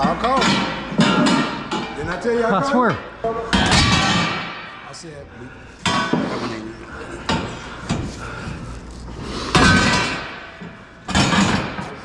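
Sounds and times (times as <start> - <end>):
scrap metal clanking: 5.8 - 12.0.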